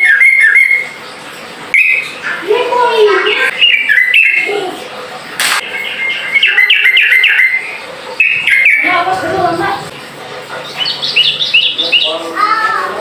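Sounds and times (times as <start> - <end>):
bird chattering song: 0.0 - 1.0, 1.8 - 2.2, 3.2 - 4.6, 5.6 - 9.3, 10.6 - 12.4.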